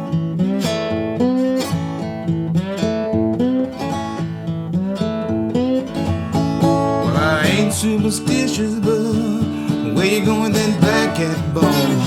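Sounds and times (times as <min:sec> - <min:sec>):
acoustic guitar blues accompaniment: 0:00.0 - 0:12.0.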